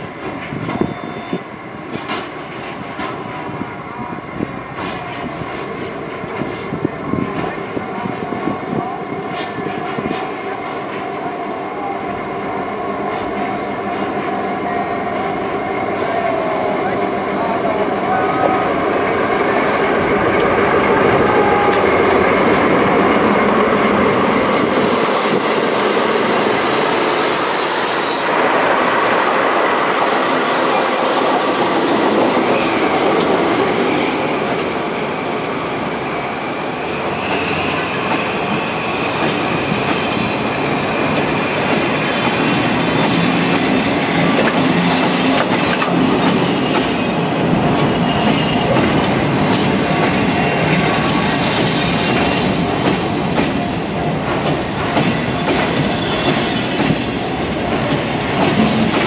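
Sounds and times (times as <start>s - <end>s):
diesel locomotive passing slowly: 0.0s - 59.0s
high steady wheel squeal: 35.9s - 40.8s.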